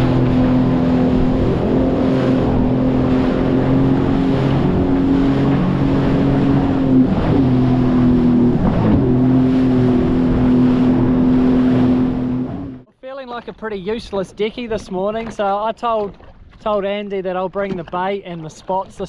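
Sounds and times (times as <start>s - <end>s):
jet ski engine running: 0.0s - 12.9s
water noise: 0.0s - 19.0s.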